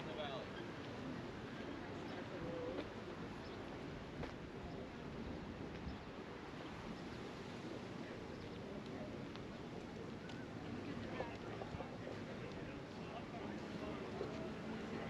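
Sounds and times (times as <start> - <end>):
low outdoor rush: 0.0 - 15.0
faint clicks: 8.8 - 10.5.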